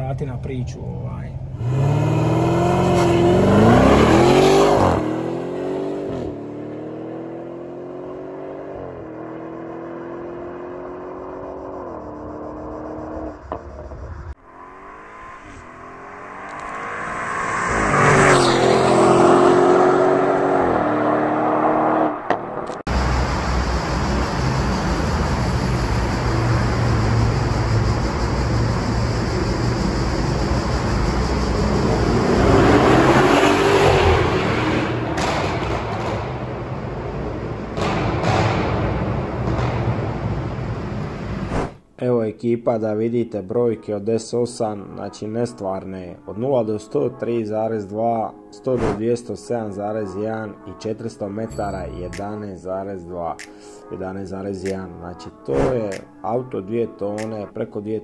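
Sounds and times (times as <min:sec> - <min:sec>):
road traffic in tunnel: 0:00.0 - 0:41.9
car engine accelerating: 0:01.3 - 0:41.6
car passing close: 0:14.3 - 0:41.8.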